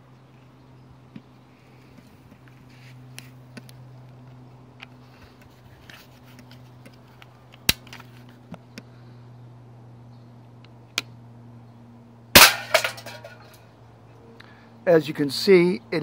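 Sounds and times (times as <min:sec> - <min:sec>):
steady low hum: 0:00.0 - 0:16.0
pistol shot sharp crack: 0:12.4 - 0:12.9.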